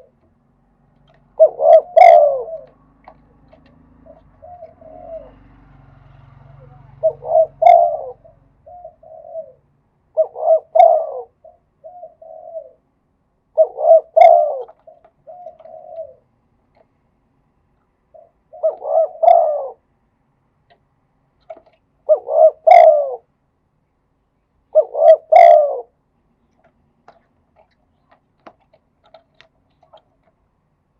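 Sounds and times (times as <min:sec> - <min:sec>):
dove cooing: 0:01.0 - 0:16.9, 0:18.1 - 0:19.9, 0:21.4 - 0:23.3, 0:24.7 - 0:26.0.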